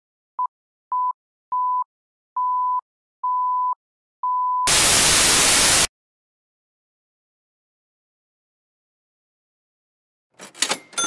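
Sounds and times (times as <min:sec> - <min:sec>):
static hiss burst: 0:04.7 - 0:05.9.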